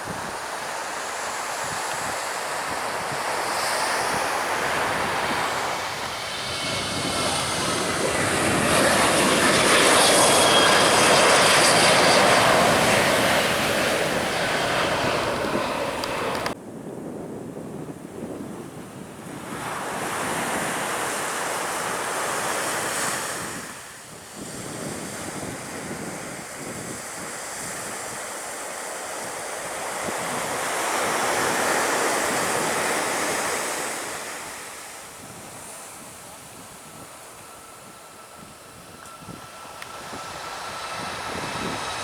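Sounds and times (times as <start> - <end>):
waves breaking on beach: 0.0 - 8.8, 11.1 - 16.6, 19.4 - 38.4
faint whine: 0.0 - 16.6, 34.9 - 42.0
wind noise on microphone: 0.0 - 28.4, 29.7 - 42.0.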